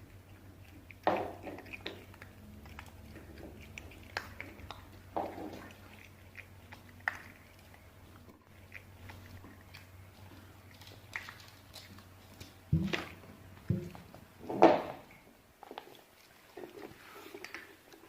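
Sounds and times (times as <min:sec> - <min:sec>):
dog chewing and gnawing: 0:00.0 - 0:18.0.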